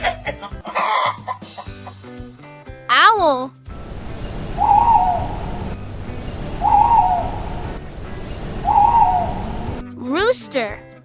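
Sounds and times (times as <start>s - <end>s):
owl hooting: 3.7s - 9.8s
steady hiss: 3.7s - 9.8s.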